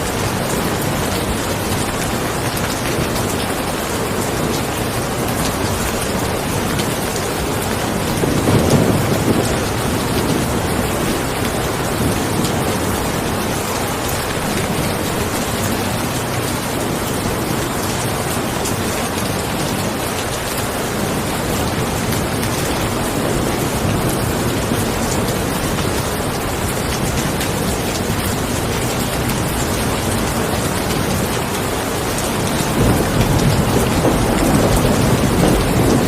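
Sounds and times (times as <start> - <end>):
heavy rain: 0.0 - 36.0
thunder rumble: 7.8 - 15.1, 32.2 - 36.0.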